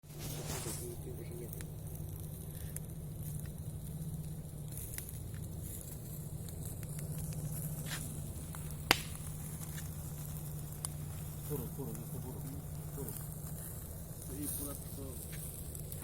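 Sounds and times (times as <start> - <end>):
campfire crackling: 0.0 - 16.0
steady low hum: 0.0 - 16.0
loud sharp pop: 8.9 - 9.2.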